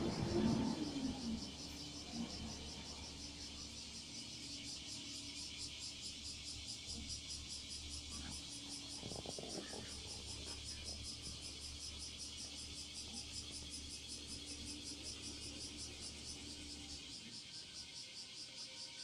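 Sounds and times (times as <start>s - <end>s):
pulsing high hiss of small engine: 0.0s - 19.0s
light clatter: 8.1s - 11.5s.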